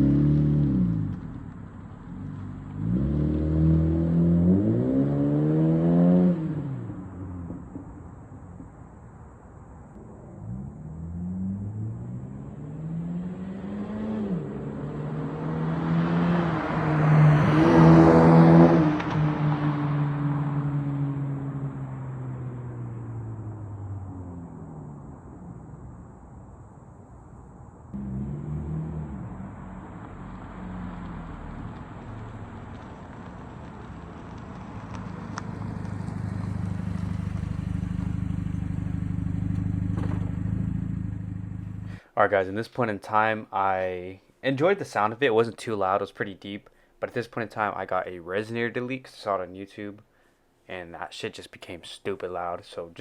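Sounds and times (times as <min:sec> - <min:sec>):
deep exhaust drone: 0:27.9 - 0:31.7
car engine exhaust note: 0:27.9 - 0:32.8, 0:34.8 - 0:42.0.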